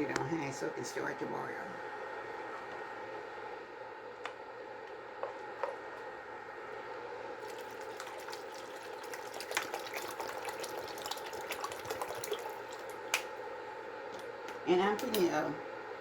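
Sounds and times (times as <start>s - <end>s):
water pouring into a pot: 7.4s - 13.4s.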